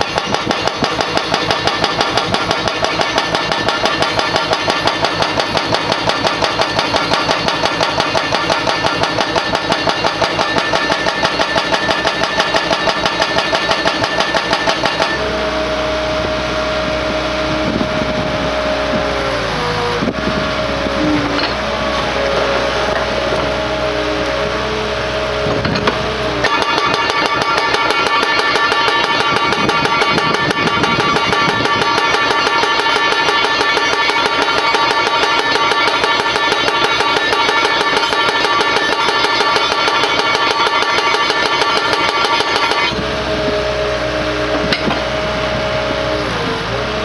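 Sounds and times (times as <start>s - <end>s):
hydraulic hammer breaking: 0.0s - 15.4s, 25.4s - 43.5s, 44.5s - 45.1s
machine engine and hydraulics whine: 0.0s - 47.0s.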